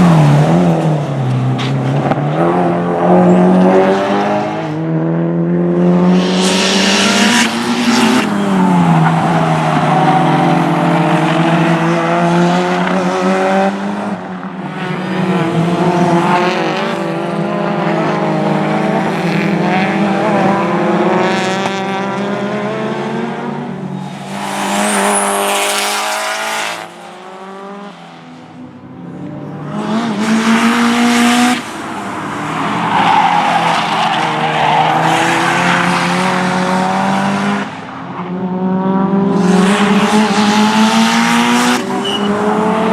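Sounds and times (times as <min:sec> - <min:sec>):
race car engines at high revs: 0:00.0 - 0:42.9
tyre squeal: 0:24.0 - 0:27.1, 0:41.9 - 0:42.4.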